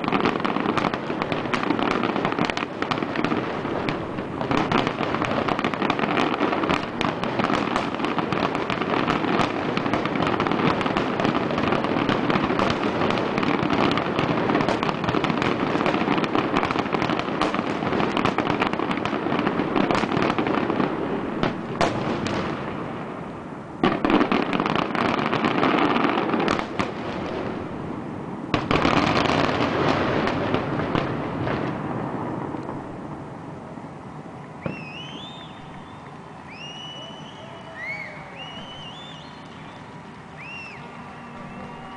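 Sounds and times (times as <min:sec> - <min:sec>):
fireworks bursting and crackling: 0:00.0 - 0:41.9.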